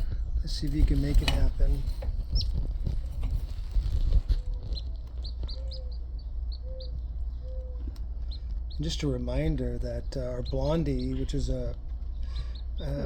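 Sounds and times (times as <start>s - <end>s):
chicks peeping: 0.0s - 13.0s
steady low hum: 0.0s - 13.0s
handling noise: 0.6s - 5.9s.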